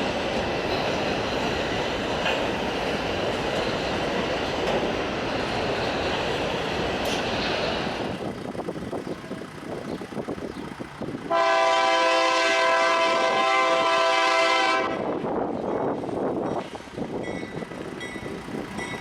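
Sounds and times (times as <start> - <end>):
train rumble: 0.0 - 19.0
locomotive air horn blast: 11.3 - 15.1.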